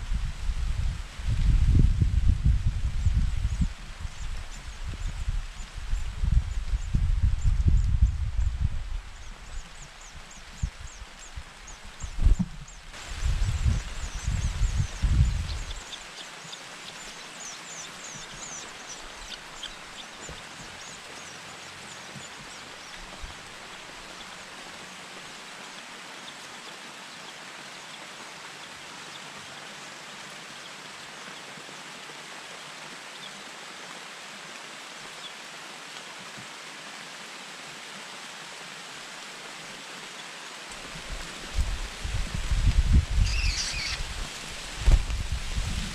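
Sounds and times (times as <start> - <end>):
steady outdoor hiss: 0.0 - 45.9
faint high bird chirps: 43.2 - 44.0.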